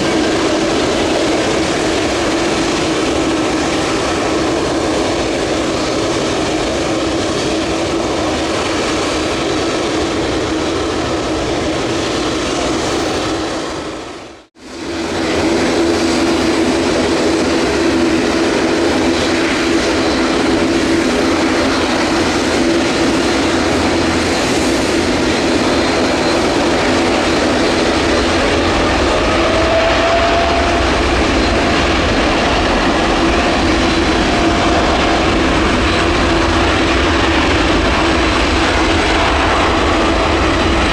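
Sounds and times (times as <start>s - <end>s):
jet engines humming: 0.0s - 40.9s.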